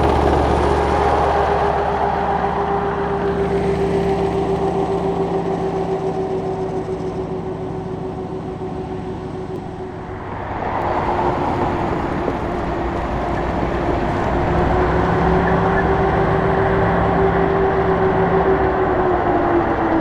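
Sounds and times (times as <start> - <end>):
tank diesel engine: 0.0 - 20.0
tracks clattering on road: 3.4 - 20.0
steady whine: 5.6 - 20.0.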